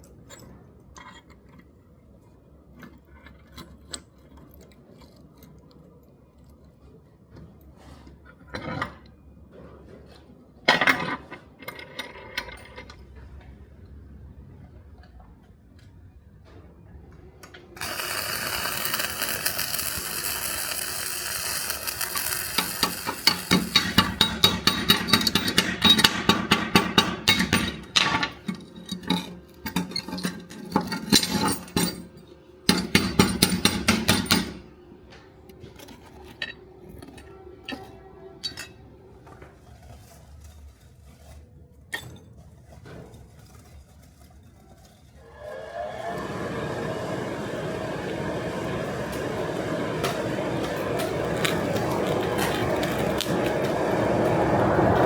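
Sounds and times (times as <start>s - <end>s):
steady rushing noise: 46.4s - 55.0s.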